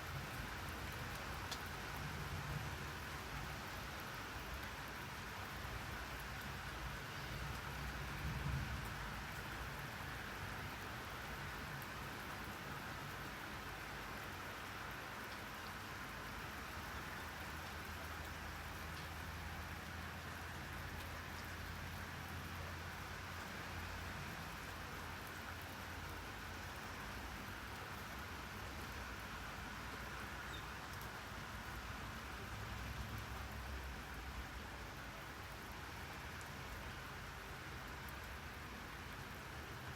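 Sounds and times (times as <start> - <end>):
steady rain hiss: 0.0 - 39.9
raindrop ticks: 0.2 - 2.1, 16.7 - 22.6, 29.9 - 34.4.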